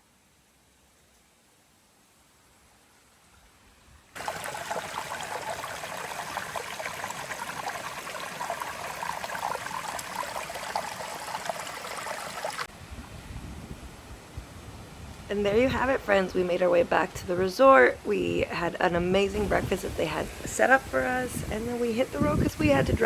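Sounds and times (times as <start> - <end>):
water trickling and splashing: 2.8 - 12.7, 15.5 - 23.0.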